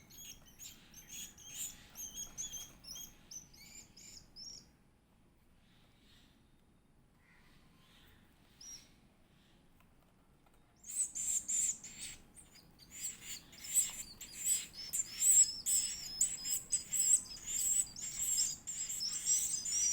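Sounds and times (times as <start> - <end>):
bird chick chirping: 0.0 - 4.6, 10.8 - 19.9.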